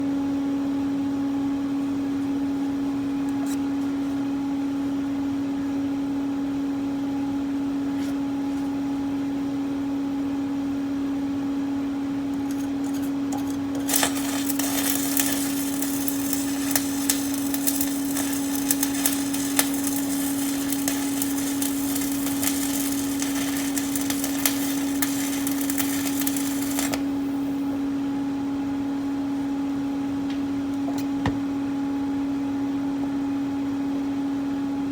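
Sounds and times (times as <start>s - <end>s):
steady hum: 8.5s - 33.8s
welding arc crackling: 12.4s - 27.6s.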